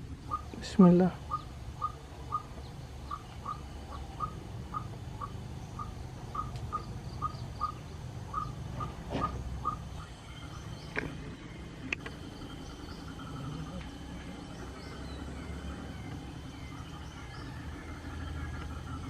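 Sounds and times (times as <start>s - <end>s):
low rural background rumble: 0.0s - 19.0s
small animal chirping: 0.2s - 11.1s.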